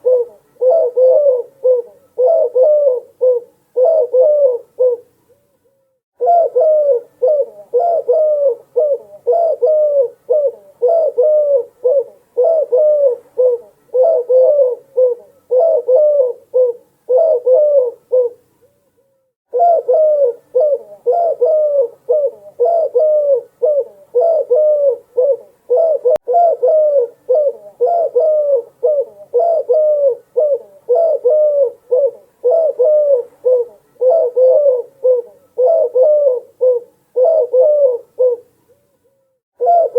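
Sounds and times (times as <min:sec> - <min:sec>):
doves cooing: 0:00.0 - 0:05.1, 0:06.2 - 0:18.4, 0:19.5 - 0:38.5, 0:39.6 - 0:39.9.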